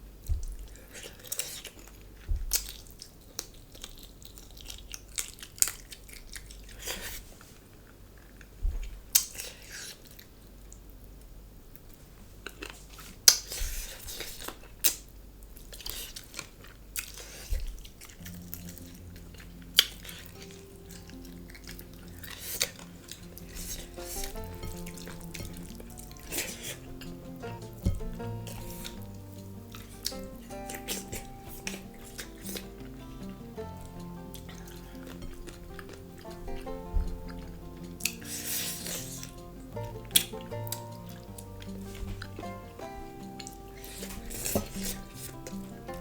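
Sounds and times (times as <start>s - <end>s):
chewing: 0.2s - 10.9s, 11.8s - 46.0s
mandolin music: 18.2s - 46.0s.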